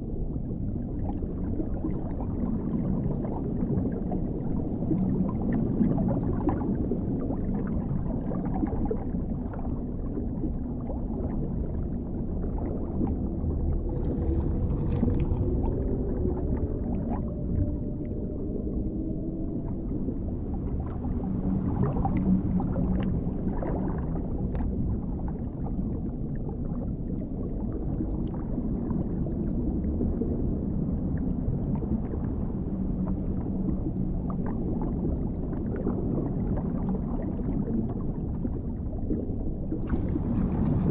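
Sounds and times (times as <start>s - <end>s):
faint gliding tones: 0.0s - 40.9s
low underwater rumble: 0.0s - 40.9s
water bubbling and gurgling: 0.0s - 40.9s.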